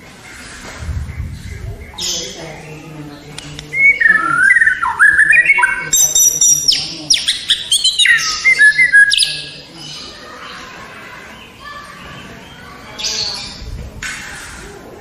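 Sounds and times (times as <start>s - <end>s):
bird singing whistles and warbles: 0.4s - 10.2s.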